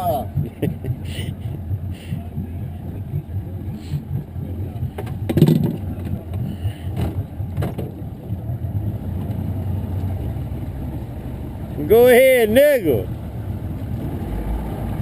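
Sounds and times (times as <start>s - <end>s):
outboard motor running: 0.0s - 15.0s
knocks: 4.9s - 8.0s
loud thump: 4.9s - 8.2s.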